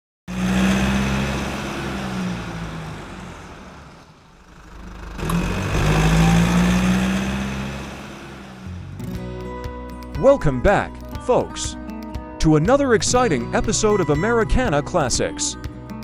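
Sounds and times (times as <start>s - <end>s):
car engine running: 0.3s - 9.6s.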